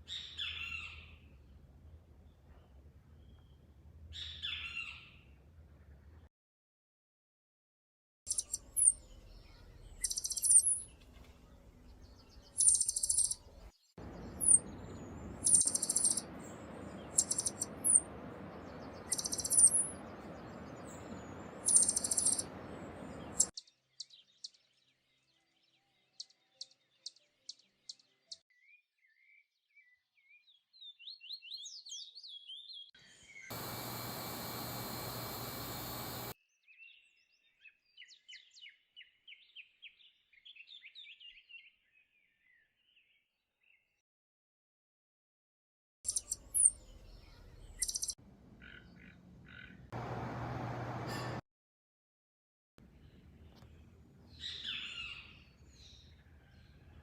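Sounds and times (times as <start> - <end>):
descending bird notes: 8.3 - 23.5
high bird calls: 8.3 - 23.5, 46.1 - 50.2
steady hiss: 33.5 - 36.3.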